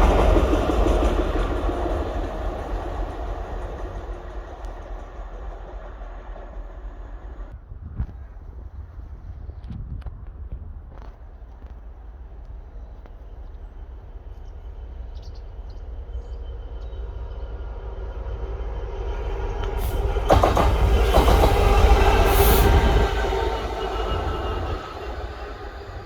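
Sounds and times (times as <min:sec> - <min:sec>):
wheels clicking over rails: 0:00.0 - 0:07.5, 0:19.2 - 0:26.0
locomotive engine approaching: 0:00.0 - 0:07.6, 0:11.6 - 0:26.0.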